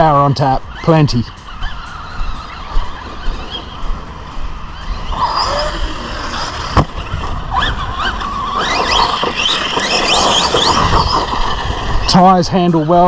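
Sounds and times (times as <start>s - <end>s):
tyre and drivetrain noise: 0.0s - 13.0s
electric motor whining: 0.6s - 12.4s.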